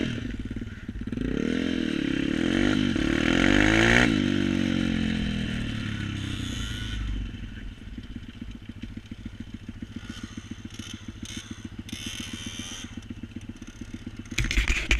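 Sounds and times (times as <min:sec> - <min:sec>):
vehicle engine idling: 0:00.0 - 0:01.4, 0:05.0 - 0:14.9.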